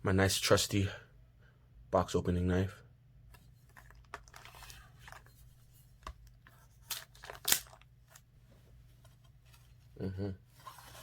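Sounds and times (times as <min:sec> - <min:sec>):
plastic wrap ripping: 0:06.9 - 0:07.9.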